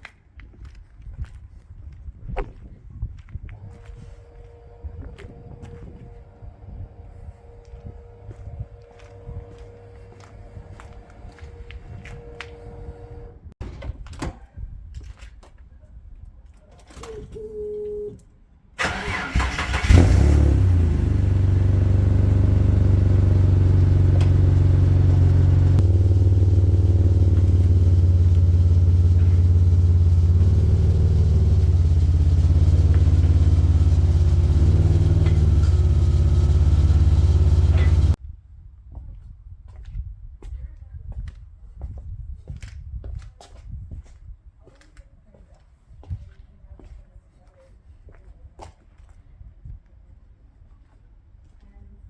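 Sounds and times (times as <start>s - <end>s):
car engine cranking and idling: 3.5s - 13.6s, 18.8s - 38.2s.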